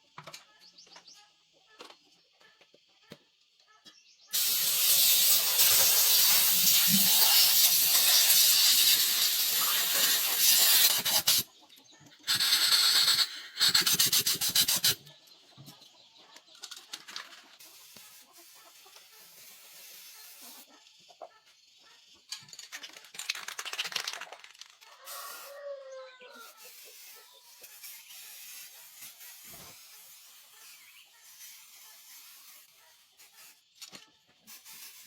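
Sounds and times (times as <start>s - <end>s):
arc welding crackling hiss: 4.3s - 11.4s, 12.3s - 15.0s.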